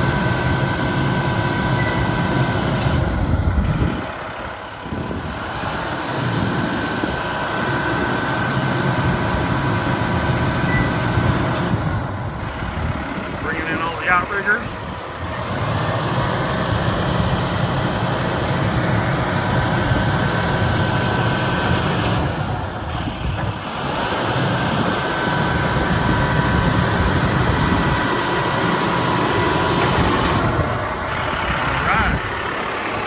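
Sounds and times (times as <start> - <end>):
diesel engine running: 0.0 - 33.0
hydraulic whine: 0.0 - 33.0.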